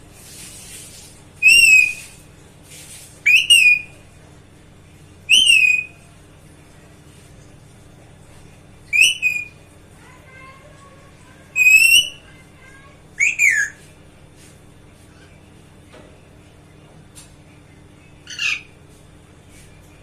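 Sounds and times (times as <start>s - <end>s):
parrot whistled calls: 1.4s - 2.2s, 3.2s - 4.0s, 5.3s - 6.0s, 8.9s - 9.6s, 11.6s - 12.2s, 13.2s - 13.8s, 18.3s - 18.7s.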